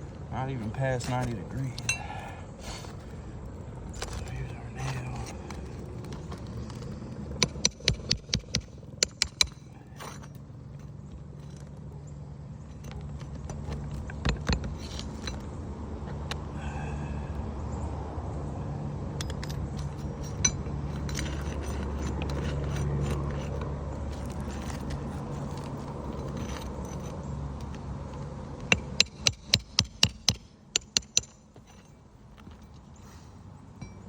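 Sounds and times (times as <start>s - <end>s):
steady low drone: 0.0s - 29.0s
tools scraping and clicking: 4.0s - 11.7s, 12.6s - 15.5s, 19.2s - 27.8s
sharp metal taps: 7.4s - 10.2s, 28.6s - 31.9s.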